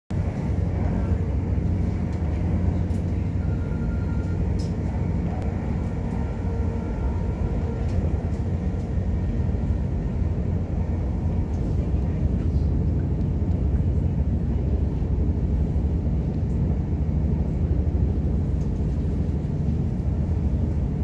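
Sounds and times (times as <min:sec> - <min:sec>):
train wheels rumbling on rail: 0:00.1 - 0:21.0.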